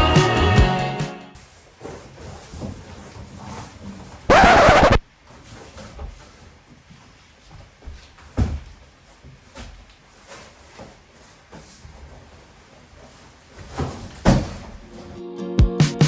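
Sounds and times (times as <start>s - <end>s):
objects knocking and thudding: 13.6s - 14.9s.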